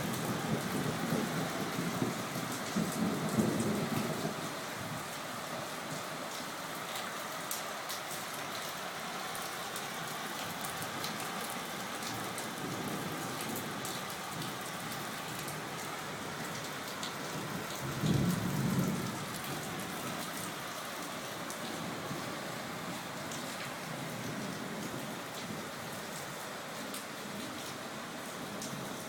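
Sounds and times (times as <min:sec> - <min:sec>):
rain falling: 0:00.0 - 0:29.0
raindrops ticking on a surface: 0:00.1 - 0:29.0
thunder rumble: 0:17.9 - 0:19.4.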